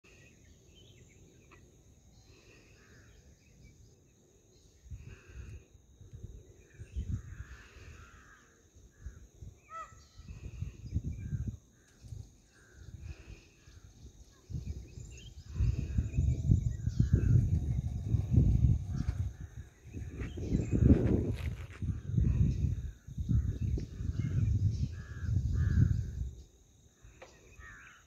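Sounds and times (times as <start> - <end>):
birds calling: 6.6 - 26.2, 27.1 - 28.0
low rumbling noise: 15.3 - 25.0.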